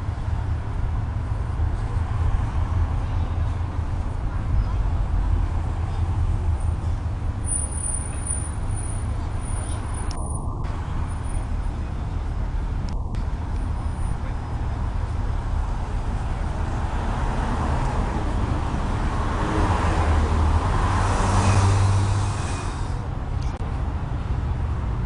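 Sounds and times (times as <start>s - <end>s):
road traffic rumble: 0.0s - 25.0s
vehicle passing by: 15.4s - 23.4s.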